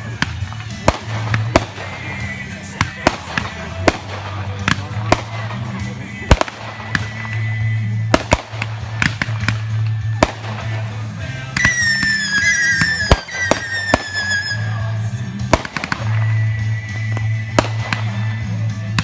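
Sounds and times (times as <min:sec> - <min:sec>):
fireworks bangs and crackles: 0:00.0 - 0:19.0
high descending whistle: 0:11.6 - 0:14.8.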